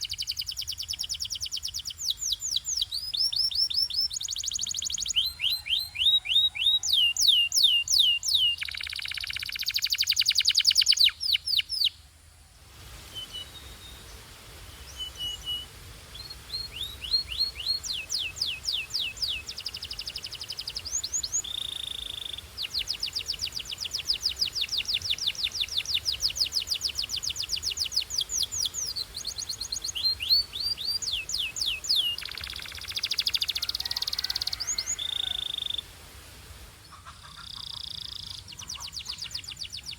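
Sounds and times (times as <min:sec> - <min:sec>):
canary singing: 0:00.0 - 0:12.0, 0:14.9 - 0:35.9, 0:36.9 - 0:39.9.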